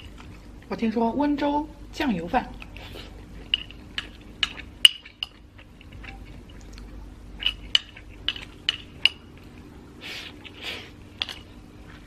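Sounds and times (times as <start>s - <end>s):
utensil clinking against a plate: 3.4s - 6.6s, 7.4s - 9.5s.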